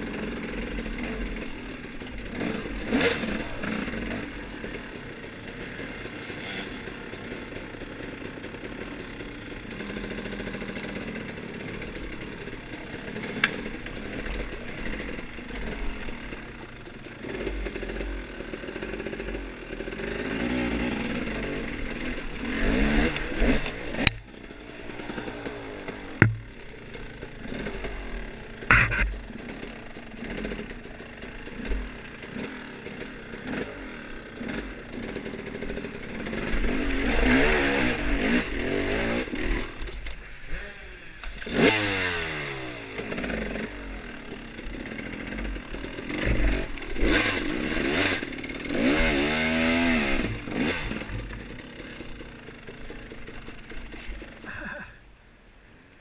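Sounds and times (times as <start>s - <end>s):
dirt bike engine revving: 0.0s - 55.0s
rattling: 21.0s - 37.1s, 43.0s - 54.9s.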